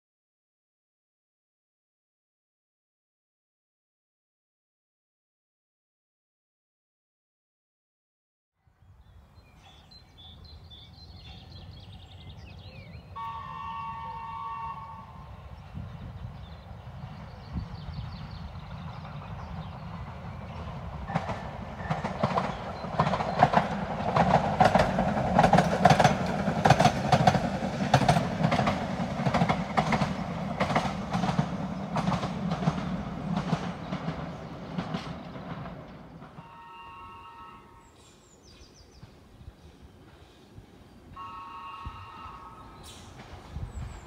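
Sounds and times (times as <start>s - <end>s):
train running hum: 9.2s - 44.0s
train wheels clicking over rail joints: 18.0s - 36.4s, 42.8s - 44.0s.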